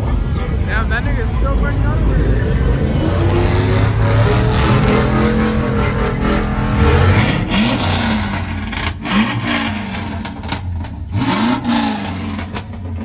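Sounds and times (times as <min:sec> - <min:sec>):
truck engines revving: 0:00.0 - 0:13.0.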